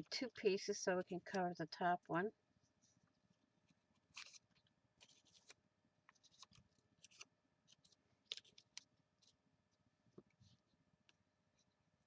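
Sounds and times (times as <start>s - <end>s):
paper rustling and scraping: 3.9s - 9.4s.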